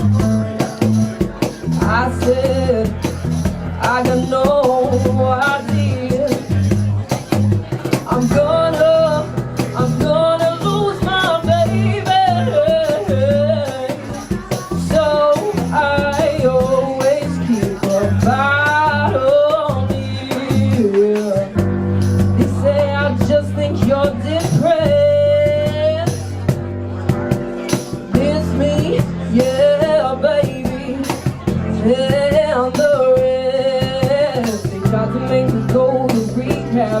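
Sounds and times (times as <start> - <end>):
live band playing soul-pop: 0.0 - 37.0.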